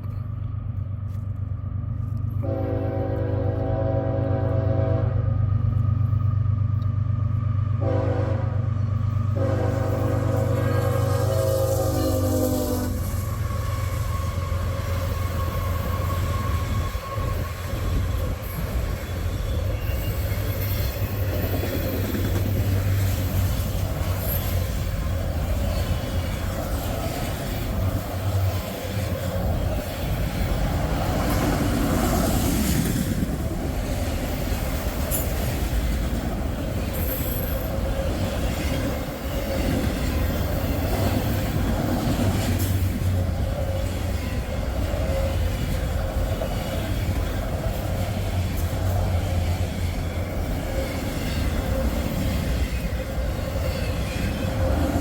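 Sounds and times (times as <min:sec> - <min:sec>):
freight train wheels on rails: 0:00.0 - 0:55.0
high wheel squeal: 0:10.3 - 0:23.0.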